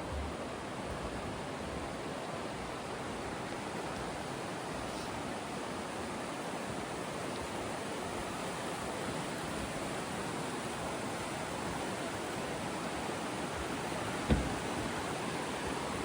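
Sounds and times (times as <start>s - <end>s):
river rapids roaring: 0.0s - 16.0s
short low thump: 14.2s - 14.8s.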